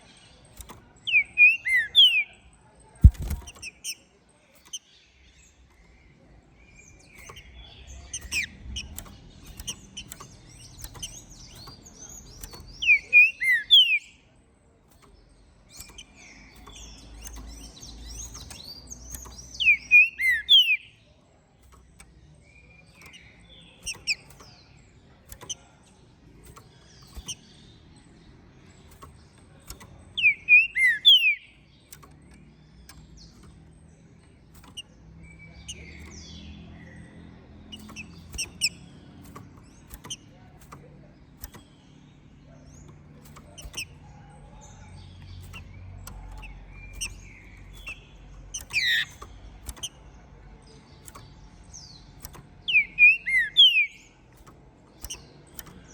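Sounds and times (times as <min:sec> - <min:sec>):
bird chirps and whistles: 0:01.1 - 0:02.4, 0:12.4 - 0:14.1, 0:19.2 - 0:20.9, 0:30.2 - 0:31.4, 0:48.6 - 0:49.2, 0:52.7 - 0:54.0.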